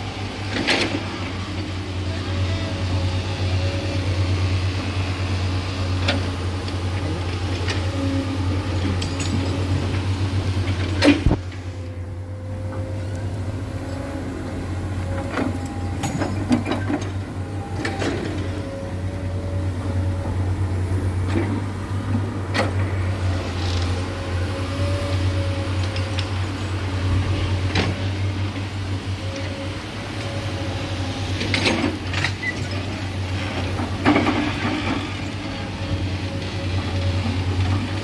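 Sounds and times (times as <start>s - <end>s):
diesel excavators running: 0.0s - 38.0s
metal and rock clanking: 8.8s - 9.7s.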